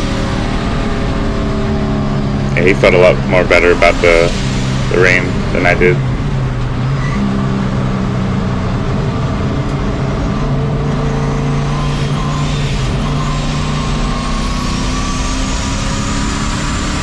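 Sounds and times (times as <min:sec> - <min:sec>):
turbocharged truck engine: 0:00.0 - 0:17.0.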